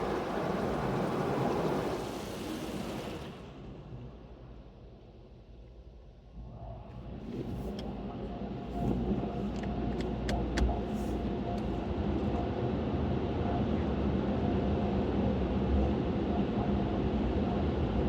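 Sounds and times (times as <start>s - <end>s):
car engine rumbling: 6.9s - 12.5s.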